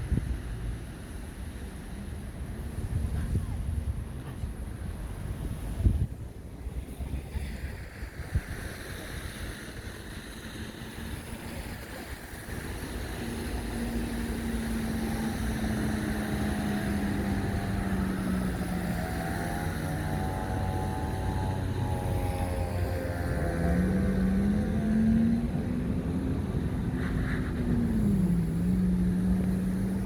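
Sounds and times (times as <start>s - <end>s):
traffic: 0.0s - 30.0s
vehicle engine humming: 10.8s - 30.0s.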